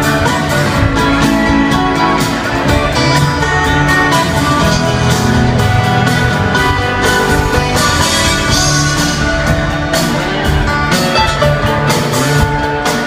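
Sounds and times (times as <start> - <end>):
bass: 0.0 - 13.0
drum kit beat: 0.0 - 13.0
guitar playing: 0.0 - 13.0.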